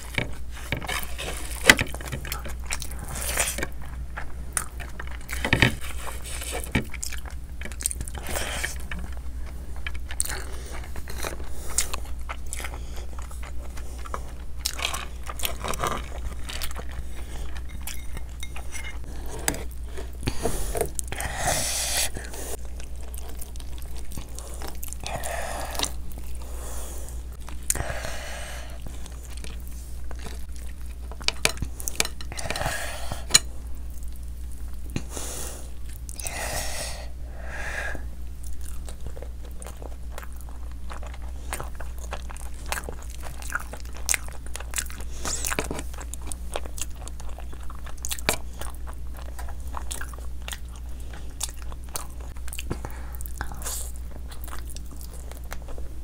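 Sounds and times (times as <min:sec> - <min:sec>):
wet chewing and mouth clicks: 0:00.0 - 0:21.2, 0:22.1 - 0:27.8, 0:38.2 - 0:56.0.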